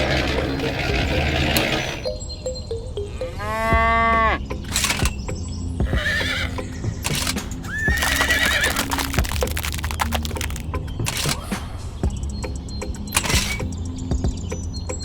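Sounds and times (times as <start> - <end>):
drawn-out animal call: 0.0 - 2.1, 5.8 - 10.6.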